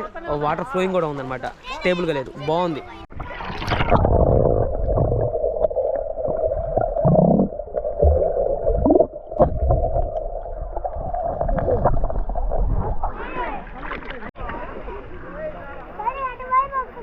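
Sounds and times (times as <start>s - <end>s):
muffled stream water gurgling: 2.2s - 16.1s
low rumbles: 3.1s - 13.7s.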